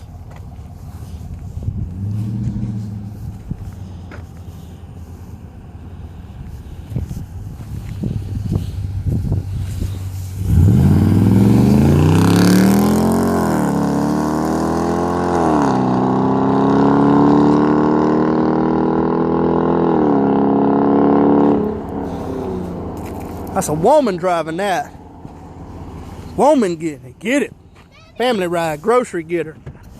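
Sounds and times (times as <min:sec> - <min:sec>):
car engine revving and accelerating: 0:00.7 - 0:06.3, 0:07.3 - 0:24.2.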